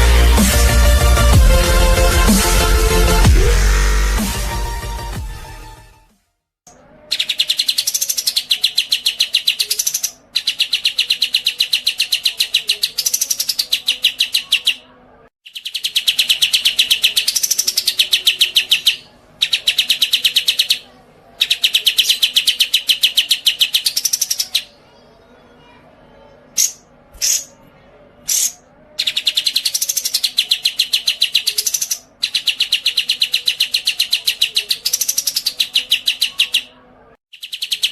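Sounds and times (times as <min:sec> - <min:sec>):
songbird trilling: 0:26.6 - 0:27.6, 0:28.3 - 0:36.7.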